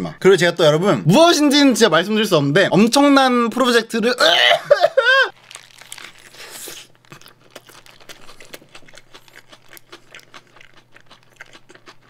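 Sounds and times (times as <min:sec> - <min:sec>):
paper wrapper crinkling: 0:05.3 - 0:10.4
wet chewing: 0:05.3 - 0:12.0.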